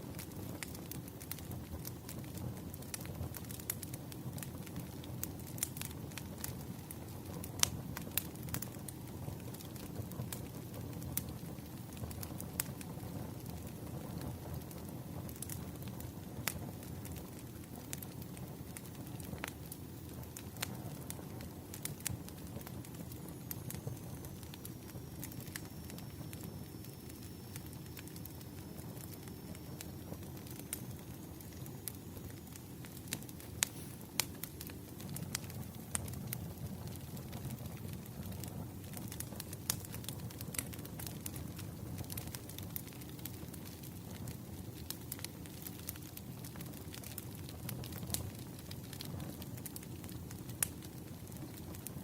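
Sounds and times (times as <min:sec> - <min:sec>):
fire low rumble: 0:00.0 - 0:52.0
wood fire crackles and pops: 0:00.0 - 0:52.0
faint high whistle: 0:23.5 - 0:32.8, 0:33.4 - 0:34.2.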